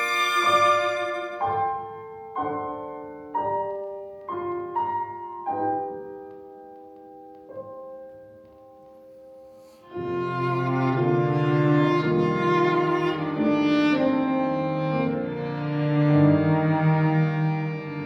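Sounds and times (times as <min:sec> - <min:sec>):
cello and violin bowed notes: 0:00.0 - 0:02.1, 0:09.8 - 0:18.0
piano chords: 0:00.0 - 0:18.0.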